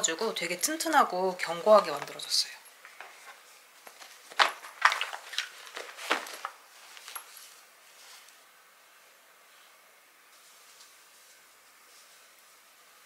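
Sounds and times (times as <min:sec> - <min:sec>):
bag rustling: 0:03.9 - 0:08.2.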